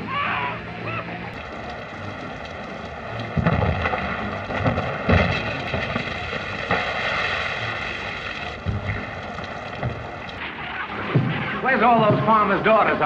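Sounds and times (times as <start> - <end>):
rushing crackling noise: 1.3 - 13.0
heavy thuds: 1.5 - 8.0, 8.6 - 10.4.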